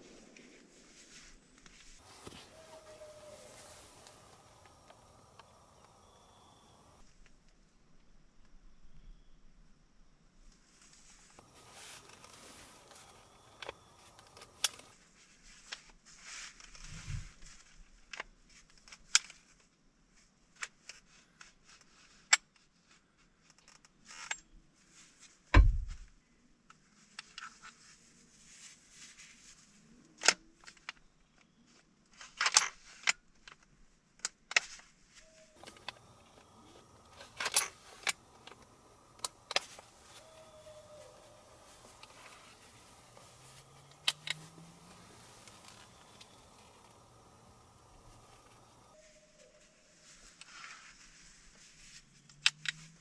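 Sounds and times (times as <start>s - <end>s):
handling clicks and rustles: 1.6s - 7.0s, 11.2s - 16.8s, 30.1s - 49.0s
dull thump: 25.6s - 26.0s.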